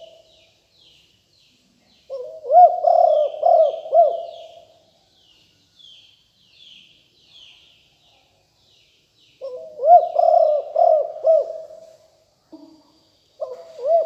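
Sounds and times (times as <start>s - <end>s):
small birds chirping faintly: 0.0s - 14.0s
dove cooing: 2.1s - 4.7s, 9.4s - 11.9s, 13.4s - 14.0s.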